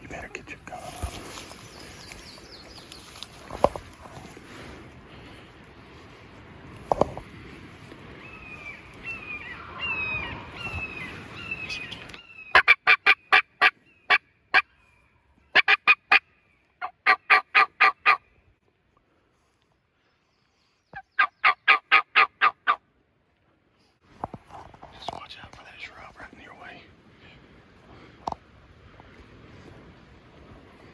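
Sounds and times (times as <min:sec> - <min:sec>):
turkey yelping: 0:09.1 - 0:14.6, 0:15.5 - 0:16.2, 0:16.8 - 0:18.2, 0:21.2 - 0:22.8.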